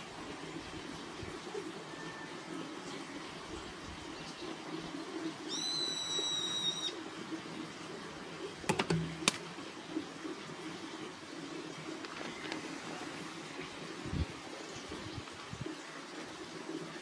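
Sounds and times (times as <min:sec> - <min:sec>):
bird whistling high note: 0:05.5 - 0:07.0.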